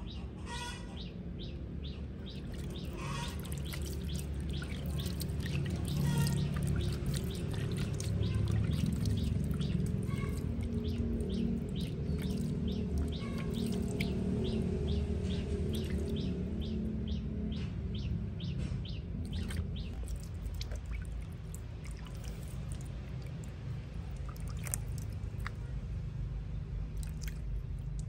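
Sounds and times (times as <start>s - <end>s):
small bird chirping: 1.4s - 21.1s.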